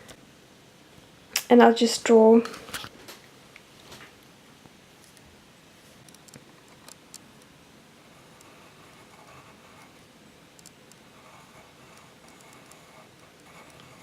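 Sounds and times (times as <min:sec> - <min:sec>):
pencil scratching on paper: 0:08.1 - 0:10.0, 0:11.1 - 0:14.0.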